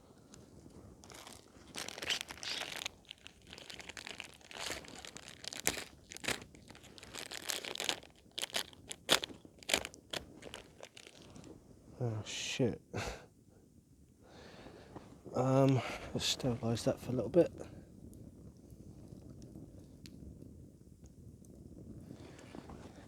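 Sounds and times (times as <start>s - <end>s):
packaging crinkling and crunching: 1.0s - 11.6s.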